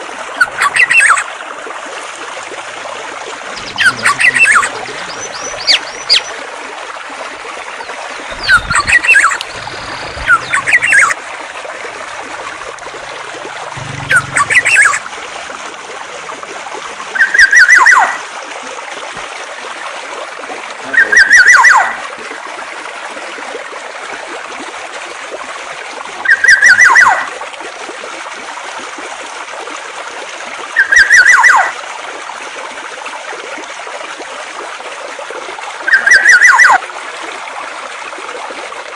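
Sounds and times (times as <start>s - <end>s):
running water: 0.0s - 38.9s
songbird calls: 0.4s - 1.2s, 3.5s - 6.4s, 7.8s - 11.2s, 13.7s - 15.2s, 17.1s - 18.2s, 20.8s - 22.0s, 26.2s - 27.3s, 30.8s - 31.7s, 35.8s - 36.8s.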